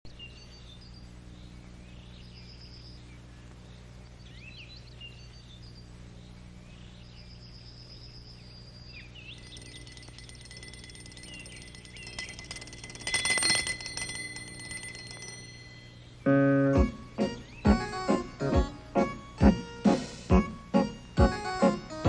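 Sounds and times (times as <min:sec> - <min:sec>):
birds chirping: 0:00.1 - 0:19.6
steady low hum: 0:00.1 - 0:22.0
bell ringing rapidly: 0:09.2 - 0:16.1.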